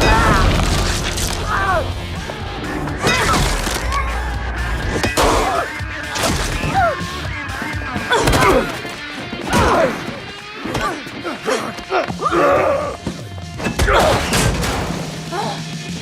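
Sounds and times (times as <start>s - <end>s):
heavy hits and crashes: 0.0s - 6.8s
music: 0.0s - 16.0s.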